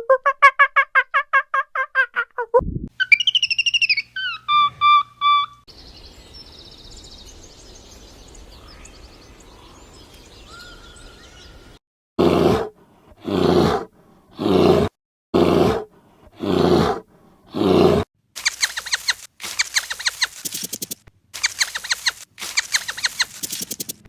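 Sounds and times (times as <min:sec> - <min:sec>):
distant bird chirps: 0:03.0 - 0:11.8, 0:18.4 - 0:24.0
large animal roaring: 0:16.4 - 0:18.0
rapid high squeaks: 0:18.4 - 0:24.0.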